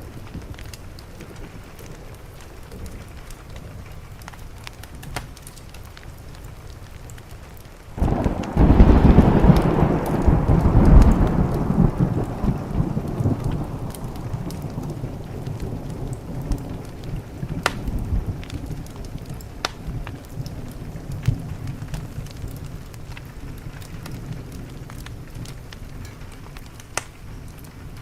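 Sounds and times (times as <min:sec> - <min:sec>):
small clicks and crackles: 0:00.0 - 0:28.0
steady rain: 0:00.0 - 0:28.0
thunder rumbling: 0:08.0 - 0:28.0.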